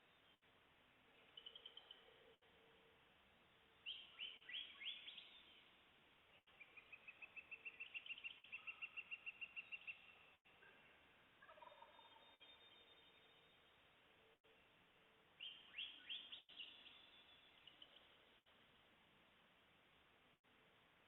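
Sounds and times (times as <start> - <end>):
songbird whistling and trilling: 3.9 - 5.5, 6.6 - 10.2, 15.4 - 18.0
distant turkey gobbling: 8.5 - 12.5.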